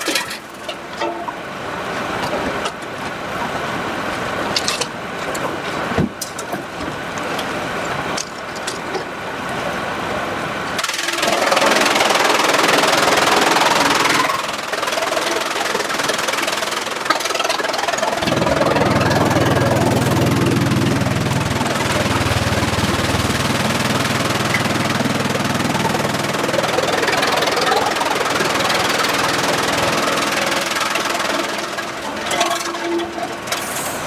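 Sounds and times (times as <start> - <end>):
sawmill machinery running: 6.6 - 34.0.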